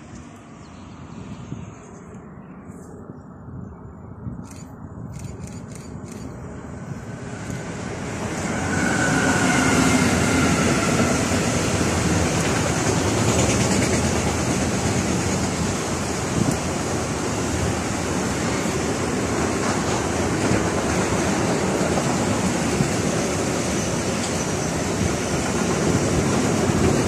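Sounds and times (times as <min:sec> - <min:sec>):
train wheels rolling on rail: 0:04.3 - 0:27.0
locomotive rumble passing: 0:06.4 - 0:27.0.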